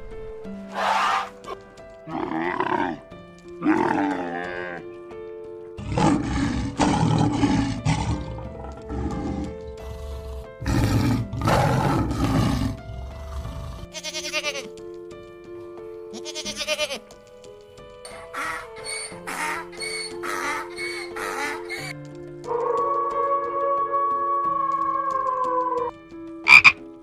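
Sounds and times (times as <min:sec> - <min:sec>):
background music with held notes: 0:00.0 - 0:27.0
animal calls: 0:00.7 - 0:03.0, 0:18.1 - 0:25.9, 0:26.5 - 0:26.8
rapid quavering animal call: 0:18.1 - 0:21.9, 0:26.5 - 0:26.8.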